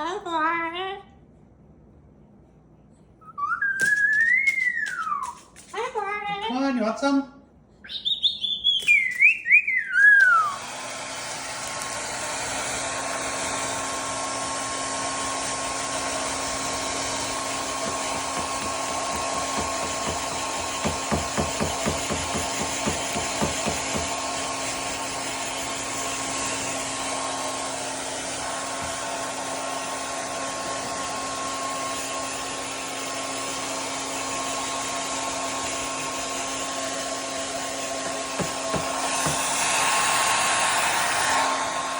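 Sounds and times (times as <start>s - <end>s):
cockatoo whistled call: 3.2s - 5.5s, 7.8s - 10.6s
hair dryer blowing: 3.8s - 5.8s, 8.8s - 41.9s.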